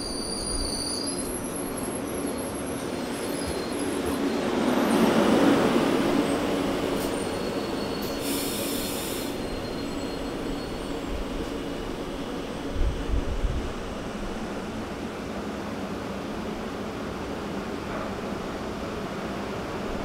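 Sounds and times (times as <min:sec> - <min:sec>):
electric train rumbling past: 0:00.0 - 0:20.0
brief hiss: 0:08.1 - 0:09.4.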